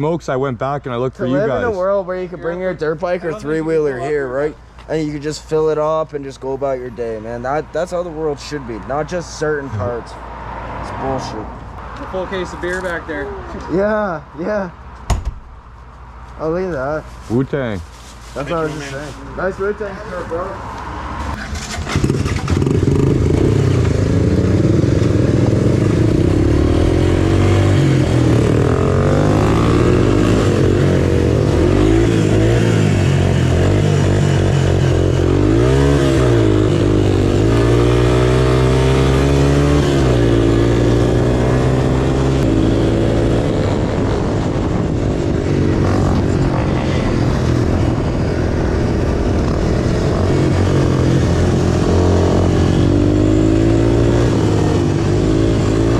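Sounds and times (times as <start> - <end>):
motorcycle engine revving: 20.3 - 55.9.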